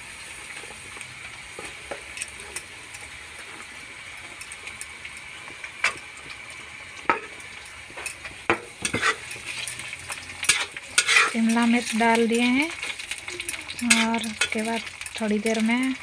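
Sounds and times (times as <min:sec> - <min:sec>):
vegetables sizzling in hot oil: 0:00.0 - 0:16.0
metal spatula clicking on pan: 0:08.8 - 0:15.2.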